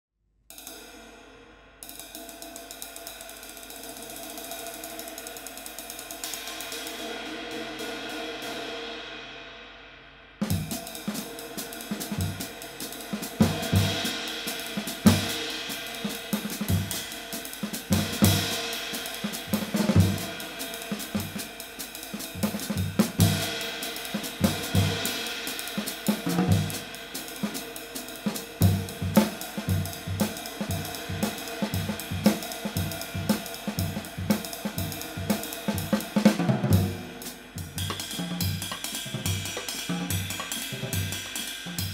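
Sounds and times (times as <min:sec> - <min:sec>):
drum-kit groove: 0:10.4 - 0:41.9
ride cymbal wash: 0:10.5 - 0:41.9.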